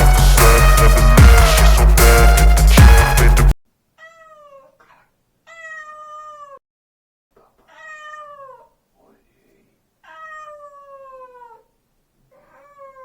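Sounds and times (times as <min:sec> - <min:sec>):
burst of music: 0:00.0 - 0:03.5
cat meowing: 0:04.0 - 0:06.6, 0:07.6 - 0:08.8, 0:10.0 - 0:11.7, 0:12.4 - 0:13.0.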